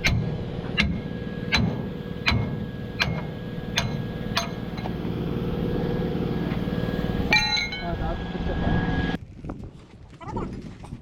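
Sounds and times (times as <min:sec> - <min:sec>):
sharp ringing strikes on metal: 0:00.0 - 0:05.0, 0:07.3 - 0:08.2
engine running: 0:00.0 - 0:09.2.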